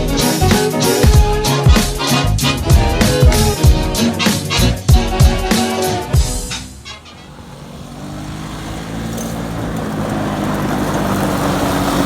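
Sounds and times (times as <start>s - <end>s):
music track: 0.0s - 7.2s
vehicle engine running: 2.2s - 5.4s, 6.0s - 12.0s.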